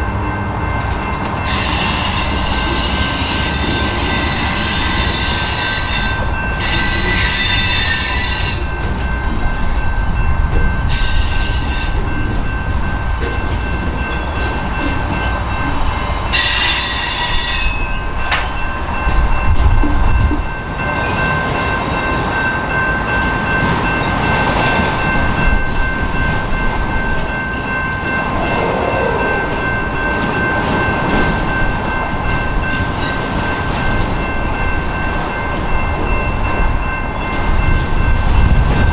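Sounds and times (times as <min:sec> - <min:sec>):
freight train rumbling past: 0:00.0 - 0:38.9.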